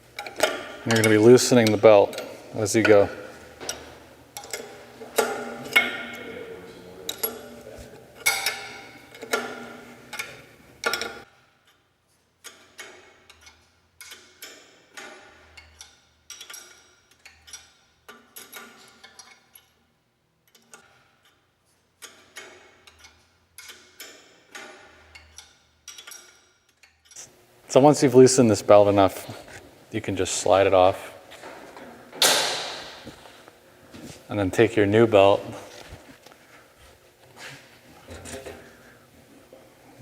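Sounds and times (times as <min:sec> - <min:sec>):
wrench clicking: 0:03.6 - 0:06.2, 0:08.2 - 0:11.8, 0:12.4 - 0:19.8, 0:22.0 - 0:27.2.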